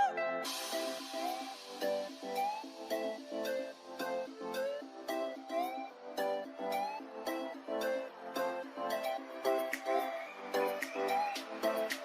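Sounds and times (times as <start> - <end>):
upbeat instrumental music: 0.0 - 12.0.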